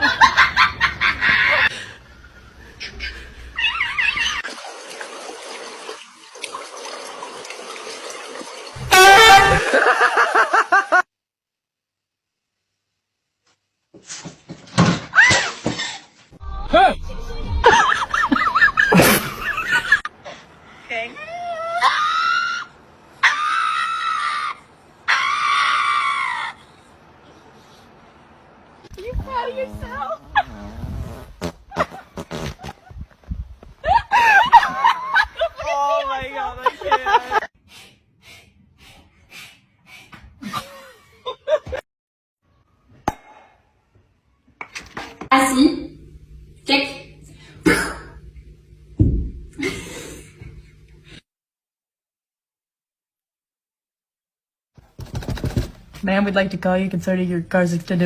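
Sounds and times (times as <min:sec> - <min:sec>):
high-pitched screams: 0:21.4 - 0:26.7.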